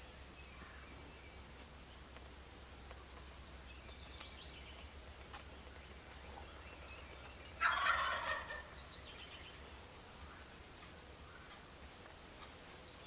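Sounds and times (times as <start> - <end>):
turkey gobbling: 7.6 - 8.7.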